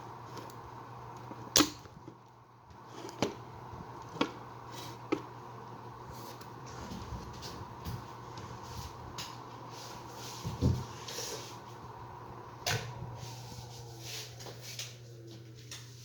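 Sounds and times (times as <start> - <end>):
ceiling fan motor humming: 0.0 - 16.0.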